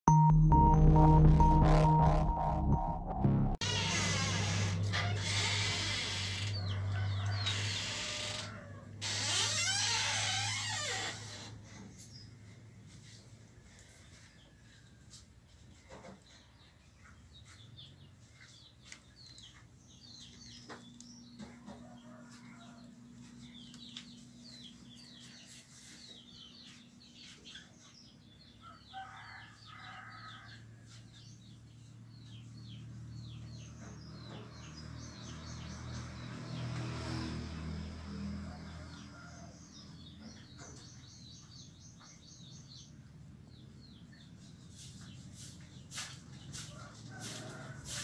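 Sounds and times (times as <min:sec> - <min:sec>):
birds chirping: 0:15.7 - 0:36.8.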